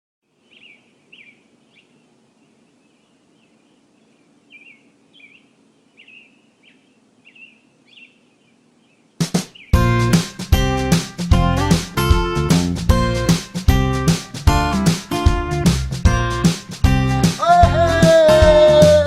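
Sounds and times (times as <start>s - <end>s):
faint background noise: 0.2s - 9.8s
bird short high chirps: 0.4s - 2.1s, 4.5s - 9.8s
strummed guitar music: 9.8s - 19.0s.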